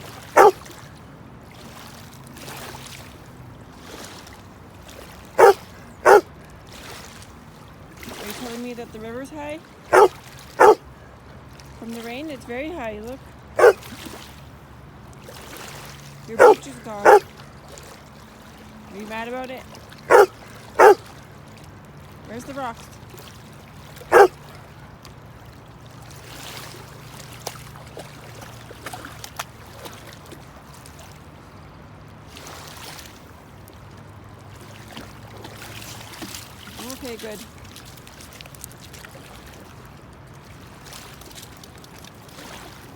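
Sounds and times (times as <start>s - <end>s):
dog barking: 0.4s - 0.6s, 5.4s - 6.2s, 9.9s - 10.8s, 13.6s - 13.8s, 16.4s - 17.3s, 20.1s - 21.0s, 24.1s - 24.3s.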